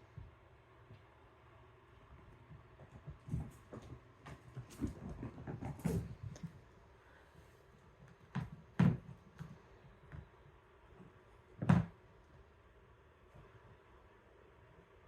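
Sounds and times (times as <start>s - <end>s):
kittens thumping and scuffling: 2.0s - 7.0s, 7.7s - 12.1s.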